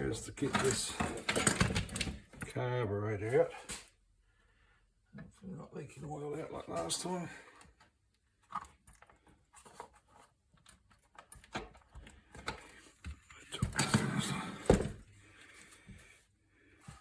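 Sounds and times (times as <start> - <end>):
hand tools clattering: 0.4 - 2.2.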